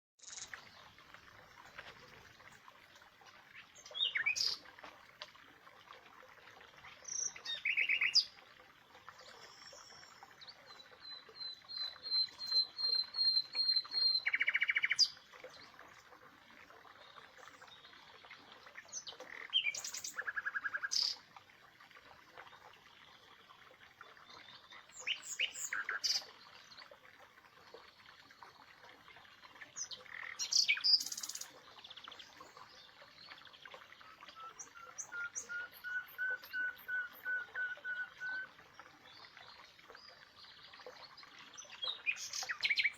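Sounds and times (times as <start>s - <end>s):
birds singing and calling: 24.3s - 26.3s, 29.8s - 42.9s.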